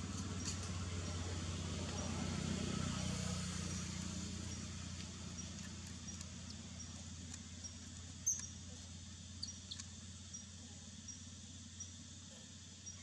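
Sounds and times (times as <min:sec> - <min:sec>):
steady low hum: 0:00.0 - 0:13.0
faint regular ticking: 0:03.7 - 0:13.0.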